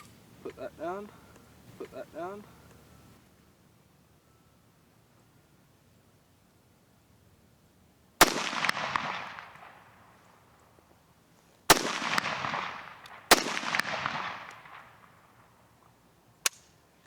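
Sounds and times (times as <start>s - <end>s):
rifle shots: 8.2s - 10.0s, 11.7s - 15.3s
rolling echo of gunshots: 8.2s - 10.1s, 11.7s - 15.4s.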